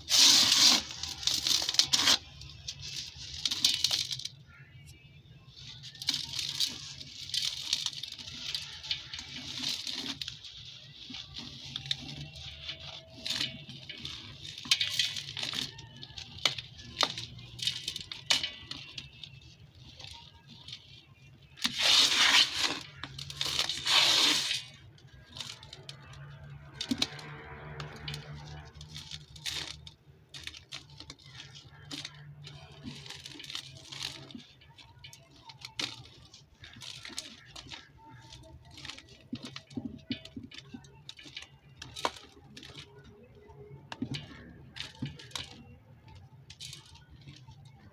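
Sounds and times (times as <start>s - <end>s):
dirt crumbling and crunching: 0.0s - 47.9s.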